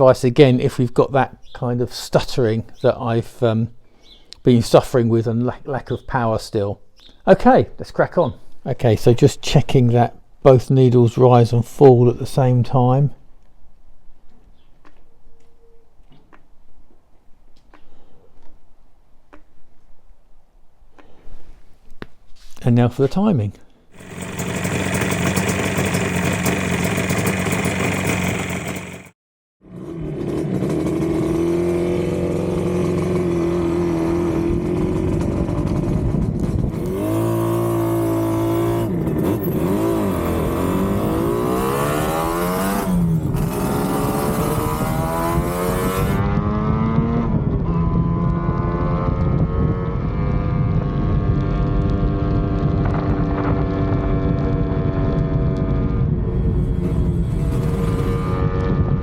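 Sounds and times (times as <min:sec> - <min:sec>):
two-stroke motorcycle engine revving: 0:24.0 - 0:59.0.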